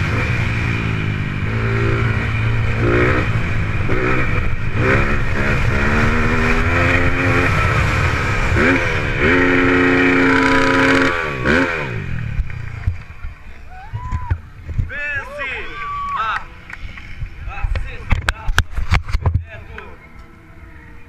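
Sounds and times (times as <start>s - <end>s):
dirt bike engine revving: 0.0s - 13.2s.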